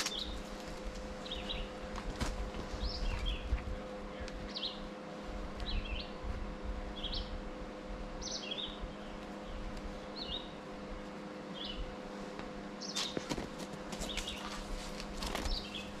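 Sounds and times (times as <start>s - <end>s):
faint steady hum: 0.0s - 16.0s
bird chirping call: 1.2s - 1.8s, 8.2s - 10.6s.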